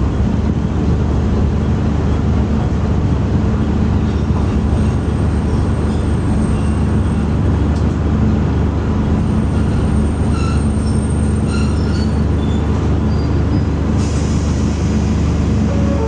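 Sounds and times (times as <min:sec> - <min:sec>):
railcar low rumble: 0:00.0 - 0:16.0.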